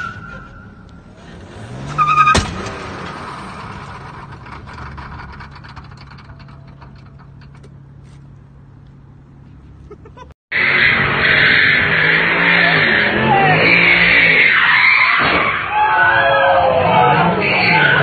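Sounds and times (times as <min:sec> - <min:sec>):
car engine revving: 0:00.5 - 0:15.6
low engine hum: 0:00.7 - 0:10.3
loud sharp bang: 0:02.2 - 0:04.3.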